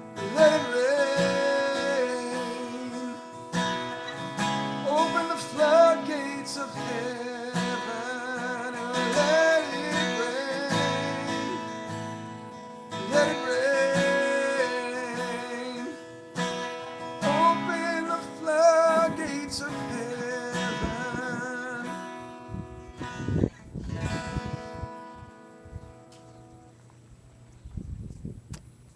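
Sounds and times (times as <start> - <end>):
man singing slow melody: 0.0 - 3.6, 4.8 - 12.2, 12.9 - 16.2, 17.2 - 22.3
acoustic guitar strummed: 0.0 - 26.8.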